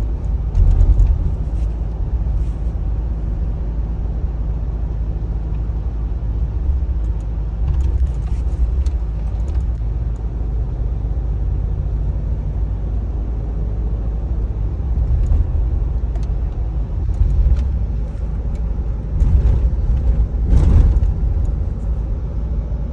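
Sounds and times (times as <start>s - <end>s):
road and engine rumble: 0.0s - 22.9s.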